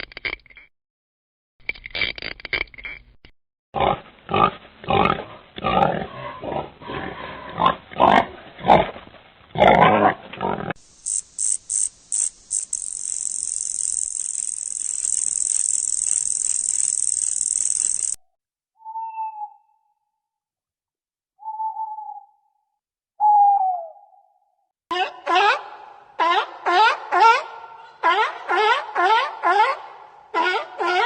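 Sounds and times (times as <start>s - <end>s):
pig grunting: 3.8s - 9.0s, 9.6s - 10.8s
high-pitched hiss: 10.8s - 18.2s.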